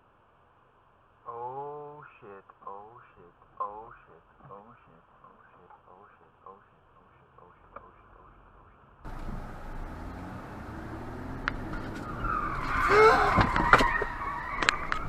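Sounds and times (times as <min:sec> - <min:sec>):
car running over road: 0:09.1 - 0:15.0
tyres squealing in a skid: 0:09.1 - 0:15.0.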